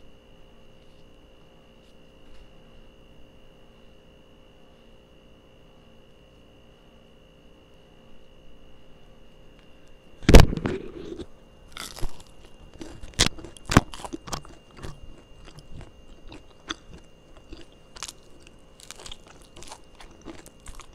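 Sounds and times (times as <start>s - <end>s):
crunching crisp flatbread: 10.2s - 20.9s.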